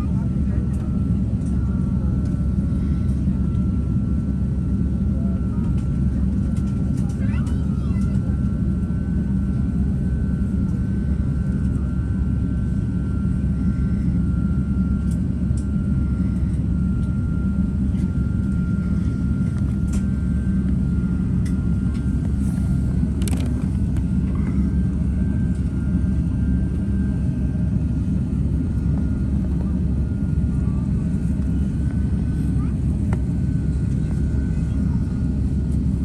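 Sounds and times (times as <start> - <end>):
jet engines running: 0.0 - 36.0
thin steady whine: 9.1 - 36.0.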